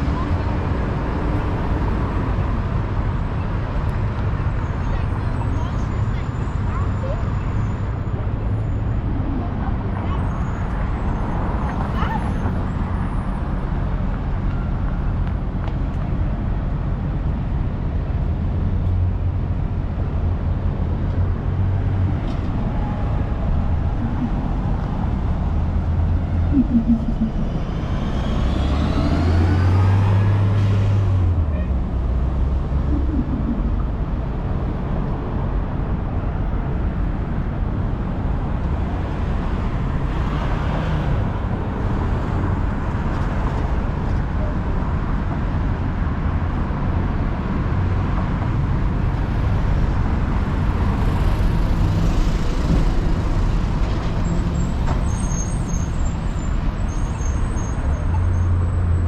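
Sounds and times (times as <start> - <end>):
city street traffic: 0.0 - 59.0
rising vehicle whine: 0.0 - 59.0
low engine hum: 15.2 - 38.8.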